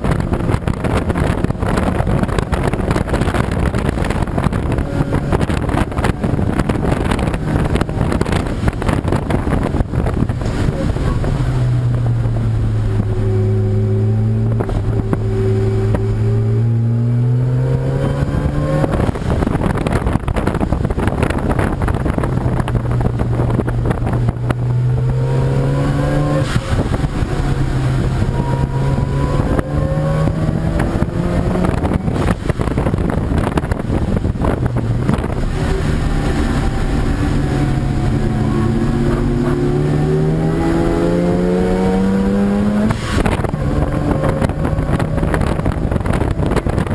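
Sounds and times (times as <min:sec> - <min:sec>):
race car engine accelerating: 0:00.0 - 0:46.9
rushing noise: 0:00.0 - 0:46.9.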